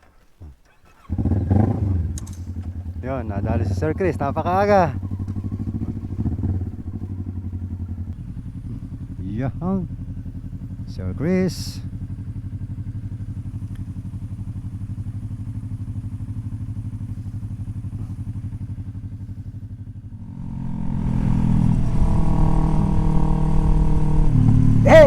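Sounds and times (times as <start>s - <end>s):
motorcycle engine: 0.1s - 25.0s.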